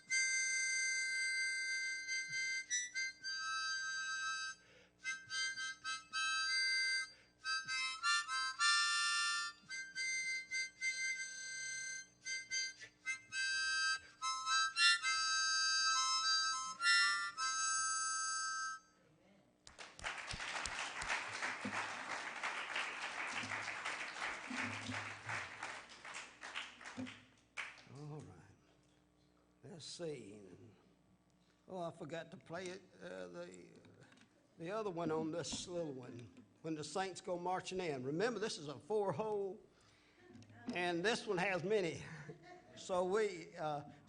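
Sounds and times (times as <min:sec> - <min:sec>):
solo harmonica playing a hymn: 0:00.0 - 0:19.0, 0:21.4 - 0:26.6
crowd applauding: 0:19.7 - 0:27.9.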